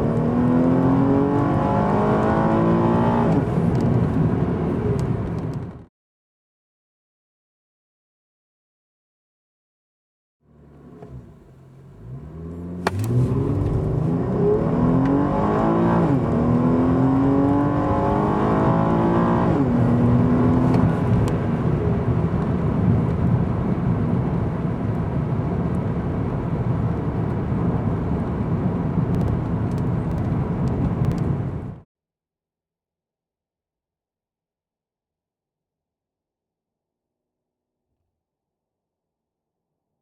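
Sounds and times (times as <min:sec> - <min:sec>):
car engine accelerating hard: 0:00.0 - 0:05.7, 0:10.5 - 0:31.8
road hum: 0:10.5 - 0:31.8.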